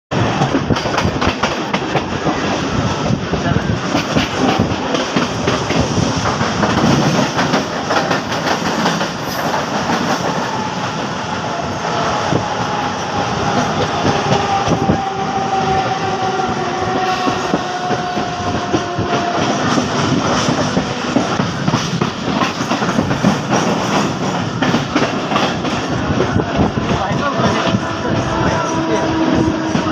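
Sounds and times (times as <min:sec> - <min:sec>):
train wheels clattering on rails: 0:00.1 - 0:11.5, 0:12.2 - 0:29.9.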